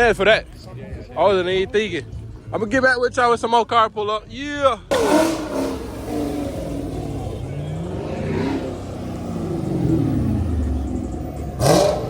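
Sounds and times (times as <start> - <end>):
car engine revving passing by: 4.9 - 12.0.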